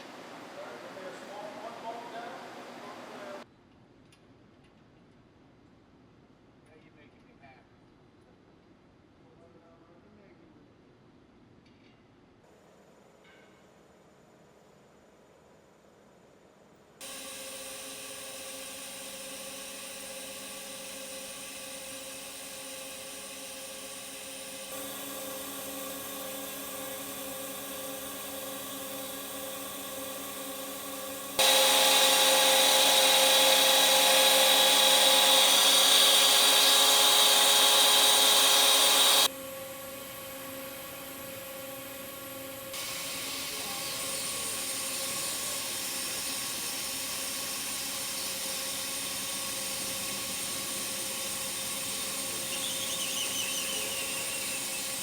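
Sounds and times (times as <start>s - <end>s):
hiss and high whine: 17.0s - 55.0s
welding machinery humming: 17.0s - 55.0s.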